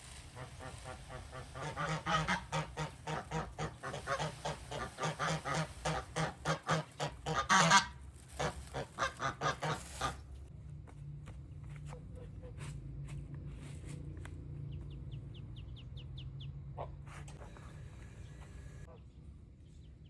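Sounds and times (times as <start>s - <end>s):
geese honking: 0.0s - 10.3s, 15.3s - 19.2s.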